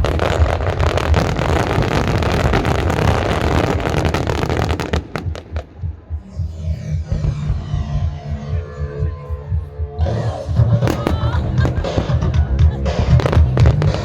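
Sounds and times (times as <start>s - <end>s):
fireworks crackling and banging: 0.0s - 6.1s, 10.8s - 14.0s.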